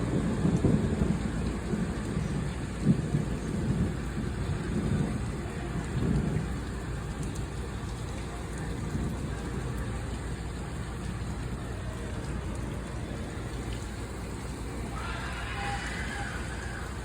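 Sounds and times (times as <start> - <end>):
low rumble of thunder: 0.0 - 17.0
steady rain: 0.0 - 17.0.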